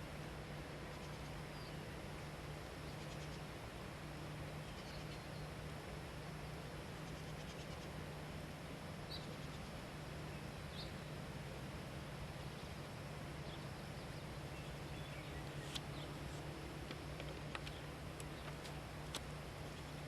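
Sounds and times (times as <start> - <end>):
low hum: 0.0 - 20.0
steady hiss: 0.0 - 20.0
faint bird chirps: 0.8 - 3.5, 4.6 - 5.6, 6.5 - 8.0, 9.0 - 11.2, 12.3 - 16.8, 19.6 - 20.0.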